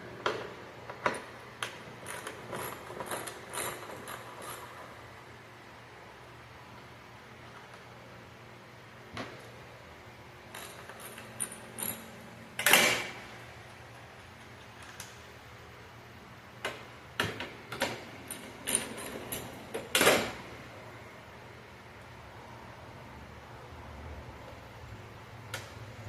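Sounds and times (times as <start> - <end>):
tools and parts clicking and knocking: 0.2 - 5.0, 10.5 - 13.2, 16.6 - 20.5.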